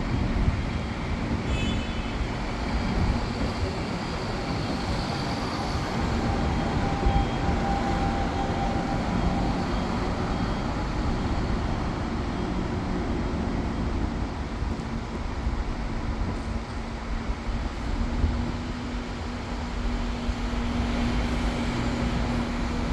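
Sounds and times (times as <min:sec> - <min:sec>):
electric train rolling rumble: 0:00.0 - 0:22.9.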